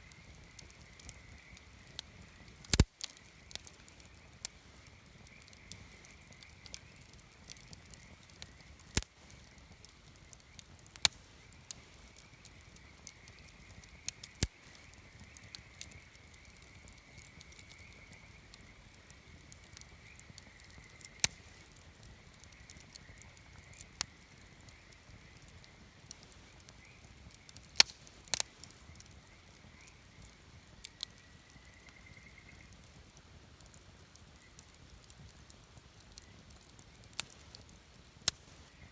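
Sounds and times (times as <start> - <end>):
campfire crackling: 0.0 - 38.9.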